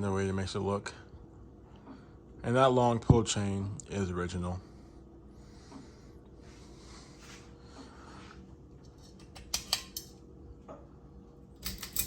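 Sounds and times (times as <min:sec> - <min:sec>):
pull chain clicking and rattling: 0:11.6 - 0:12.0.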